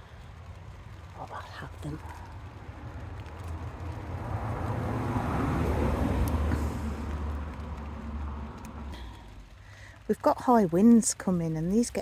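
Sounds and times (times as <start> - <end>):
vehicle passing by: 2.1 - 9.1.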